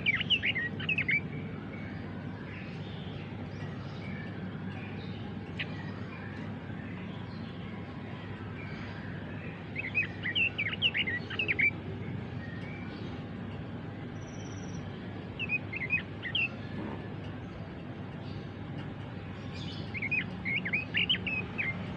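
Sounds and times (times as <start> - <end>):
bird warbling song: 0.0 - 21.9.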